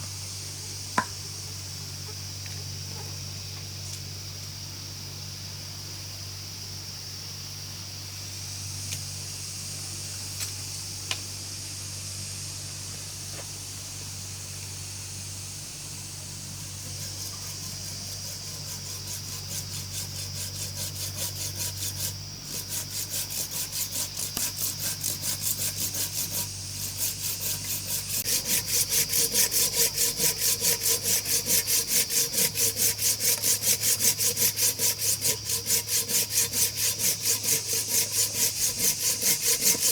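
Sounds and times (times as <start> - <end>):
steady background hum: 0.0 - 39.9
wood being hand-sawn: 16.7 - 39.9.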